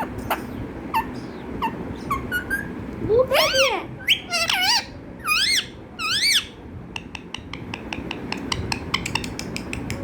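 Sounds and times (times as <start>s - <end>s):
parrot high calls: 0.0s - 6.5s
parrot sharp clicks: 8.0s - 10.0s.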